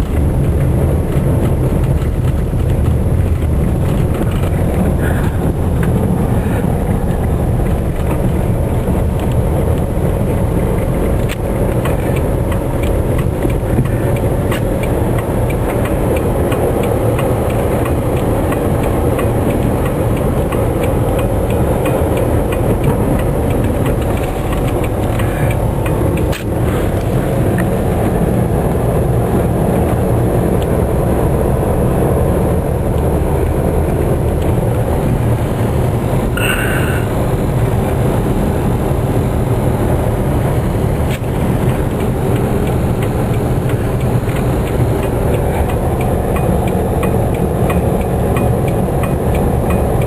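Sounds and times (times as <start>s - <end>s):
engine and tyres rumbling: 0.0s - 50.0s
light ticks: 9.1s - 27.8s, 41.1s - 50.0s.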